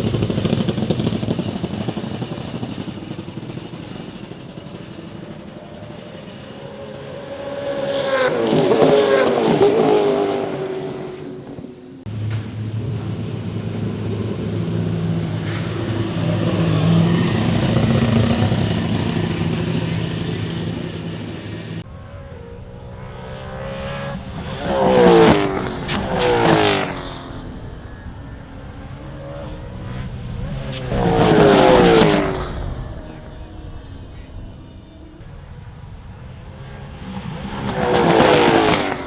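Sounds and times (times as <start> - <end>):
race car engine running: 0.0 - 7.6, 12.0 - 21.9
race cars passing at speed: 0.0 - 39.0.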